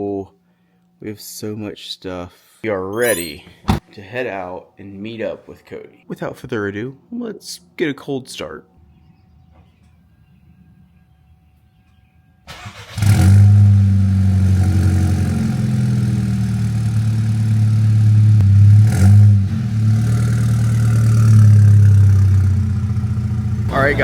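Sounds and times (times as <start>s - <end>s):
engine revving: 12.5s - 24.0s
car engine idling: 20.9s - 24.0s.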